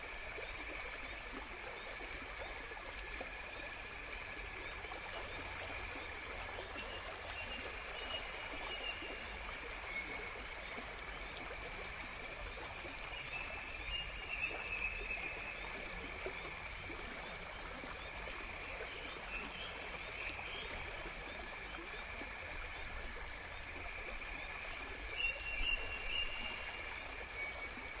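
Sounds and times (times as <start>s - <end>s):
insects chirping and buzzing: 0.0s - 28.0s.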